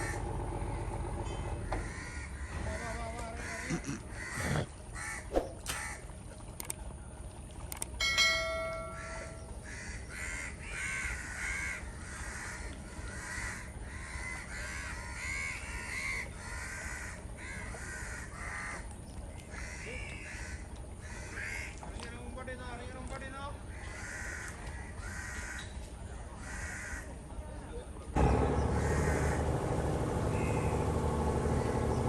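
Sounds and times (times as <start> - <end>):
birds calling: 0.0 - 6.2, 8.0 - 22.4, 23.5 - 27.2, 28.2 - 32.0
ringing tone: 8.0 - 9.6.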